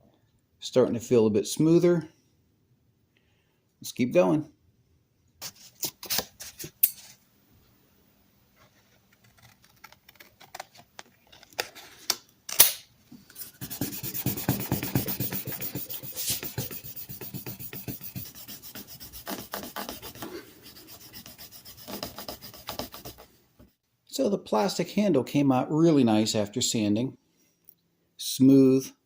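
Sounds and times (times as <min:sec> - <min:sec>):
sandpaper rubbing on plastic: 0:13.4 - 0:23.3.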